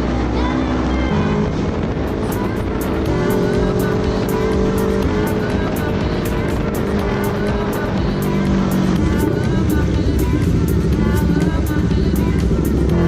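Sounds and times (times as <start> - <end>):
motorcycle engine through loud exhaust: 0.0 - 13.0
music with a steady beat: 2.1 - 13.0.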